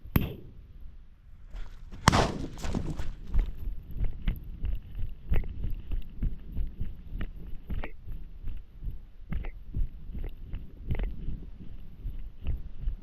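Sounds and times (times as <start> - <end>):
footsteps on rough ground: 1.4 - 7.8
sharp knock: 2.0 - 3.0.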